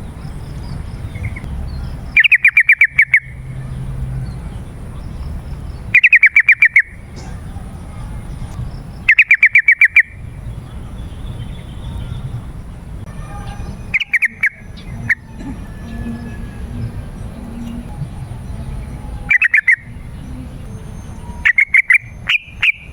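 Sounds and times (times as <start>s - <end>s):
bulbul chattering song: 0.0s - 22.9s.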